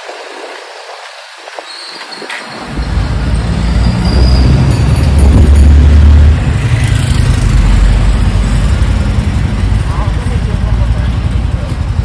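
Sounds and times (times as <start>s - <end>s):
wind noise on microphone: 0.0s - 12.0s
motorcycle engine rumble: 2.5s - 12.0s.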